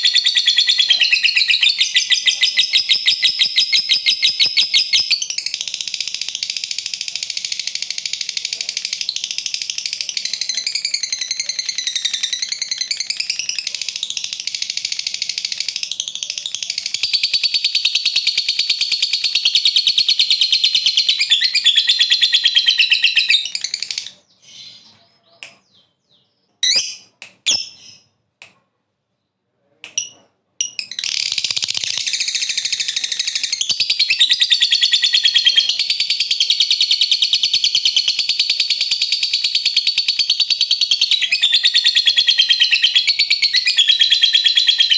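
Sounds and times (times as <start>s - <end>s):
lovebird short chirps: 0.0s - 5.6s, 26.6s - 28.1s
lovebird chattering trill: 0.0s - 25.9s, 26.6s - 28.1s, 29.9s - 44.9s.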